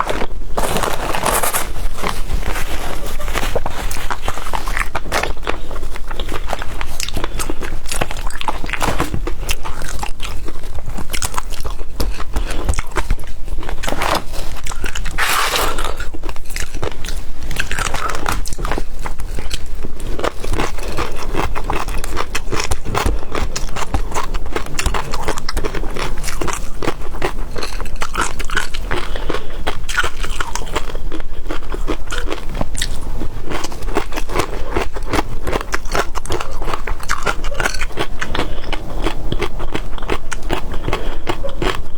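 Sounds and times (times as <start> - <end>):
person chewing crunchy seafood: 0.0 - 41.9.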